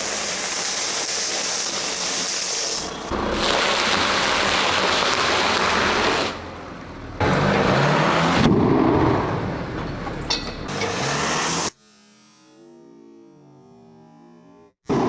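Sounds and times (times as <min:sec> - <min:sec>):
low engine rumble: 0:02.8 - 0:07.8.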